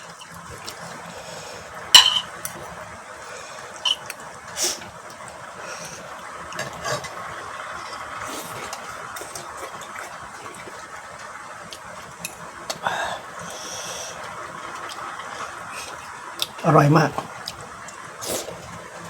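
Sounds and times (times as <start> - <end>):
spoon clicking on dish: 2.0 - 2.6.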